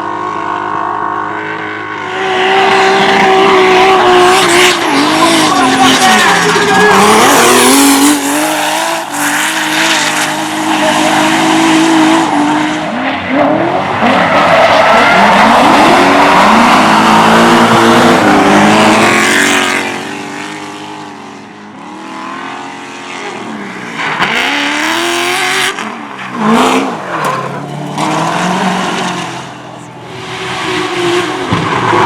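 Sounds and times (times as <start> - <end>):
another car engine: 0.2 - 32.0
car engine revving: 0.2 - 32.0
tyres squealing: 5.0 - 11.8, 23.4 - 30.0.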